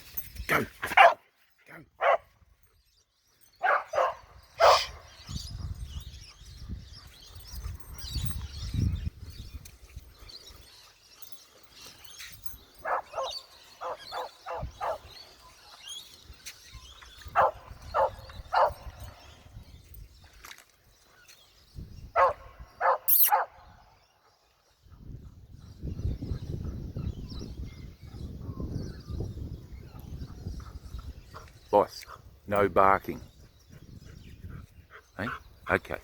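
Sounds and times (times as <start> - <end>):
dog barking: 1.0 - 1.2, 2.0 - 2.3, 3.6 - 5.0, 12.8 - 15.1, 17.4 - 18.9, 22.2 - 23.6.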